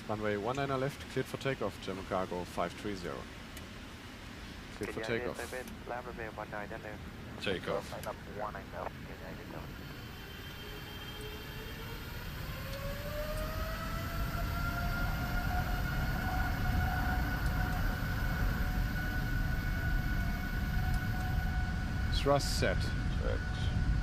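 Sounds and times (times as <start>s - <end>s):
jet engines spooling up: 4.8s - 24.0s.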